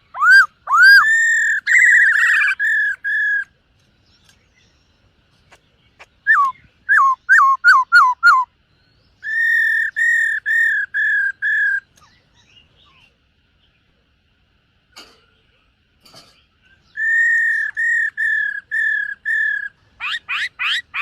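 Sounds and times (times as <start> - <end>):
bird singing whistled notes: 0.0 - 4.9, 6.0 - 13.1, 16.6 - 21.0.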